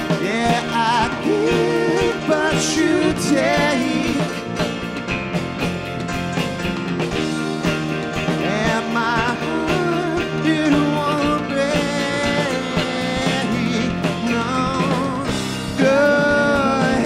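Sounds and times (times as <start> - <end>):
man singing: 0.0 - 4.6, 8.3 - 17.0
live rock band playing: 0.0 - 17.0
stage piano: 0.0 - 17.0.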